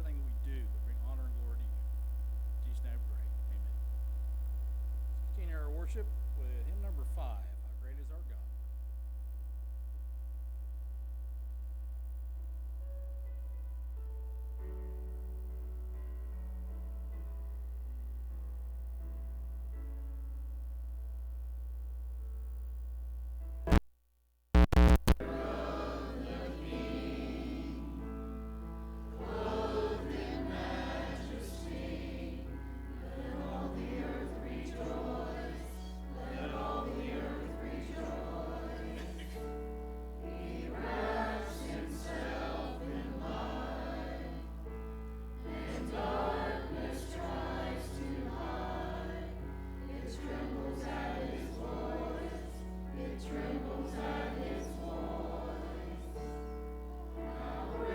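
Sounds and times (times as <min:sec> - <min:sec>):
steady low hum: 0:00.0 - 0:23.8, 0:24.6 - 0:57.9
congregation singing a hymn: 0:25.2 - 0:57.9.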